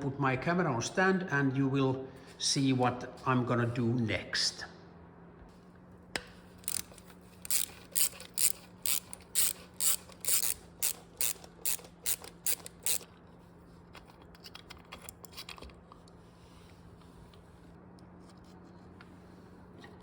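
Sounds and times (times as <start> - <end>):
small handling clicks: 6.2 - 13.1
ratchet wrench clicking: 6.6 - 13.1.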